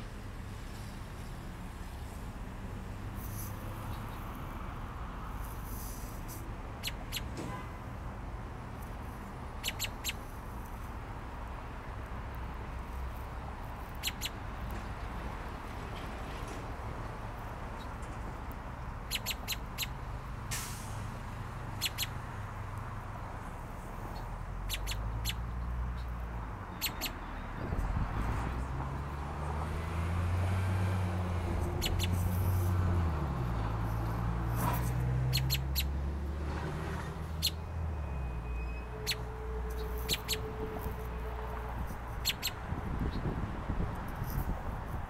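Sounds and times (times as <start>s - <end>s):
bird chip calls: 6.8s - 7.3s, 9.6s - 10.3s, 13.9s - 14.4s, 19.0s - 20.0s, 21.7s - 22.2s, 24.1s - 27.7s, 31.7s - 32.3s, 35.2s - 36.0s, 37.4s - 37.7s, 38.9s - 40.5s, 42.2s - 43.3s.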